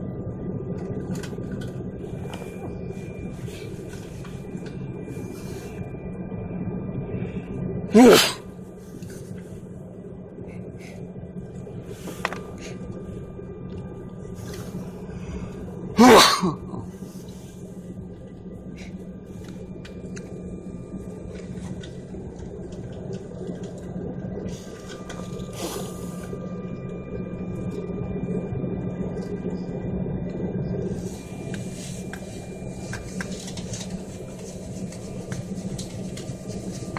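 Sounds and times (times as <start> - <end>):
aircraft cabin hum: 0.4 - 5.9, 30.8 - 36.9
person sneezing loudly: 7.9 - 8.4, 16.0 - 16.9.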